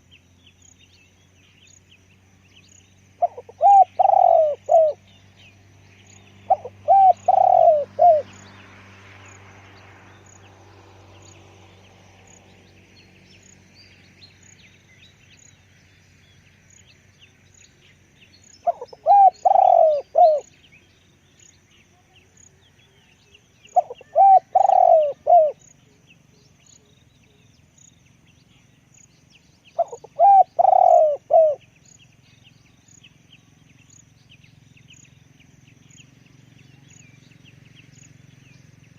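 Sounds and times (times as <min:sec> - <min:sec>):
small birds chirping: 0:00.0 - 0:38.9
dove cooing: 0:03.2 - 0:05.0, 0:06.5 - 0:08.3, 0:18.6 - 0:20.5, 0:23.7 - 0:25.6, 0:29.8 - 0:31.6.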